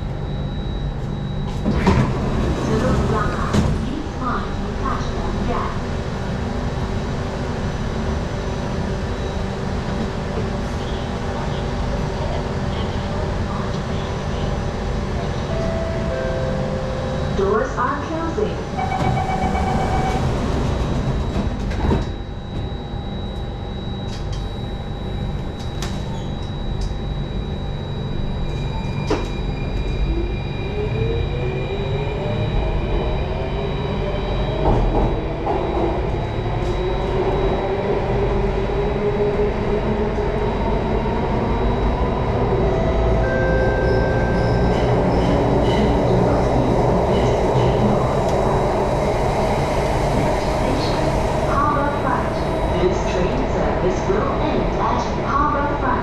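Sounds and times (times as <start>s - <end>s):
train doors shutting: 1.0s - 4.5s, 15.1s - 22.8s, 25.4s - 27.0s, 28.2s - 31.1s, 34.0s - 37.8s, 39.3s - 55.7s
wheels rumbling on track: 1.5s - 22.2s, 30.8s - 56.0s.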